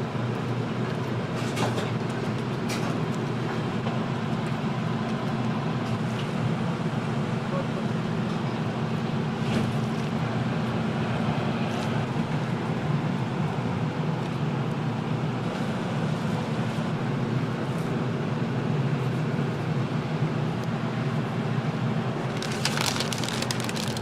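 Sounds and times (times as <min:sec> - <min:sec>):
kitchen equipment rumbling: 0:22.2 - 0:24.0.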